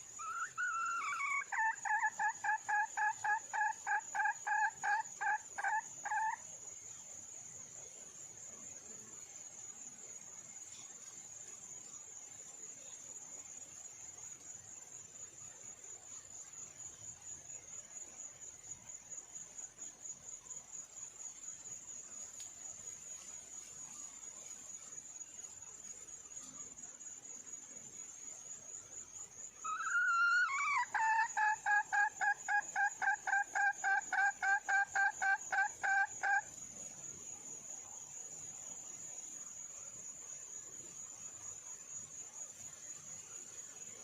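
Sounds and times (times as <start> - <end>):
hen calling and clucking: 0.2 - 6.4, 29.6 - 36.4.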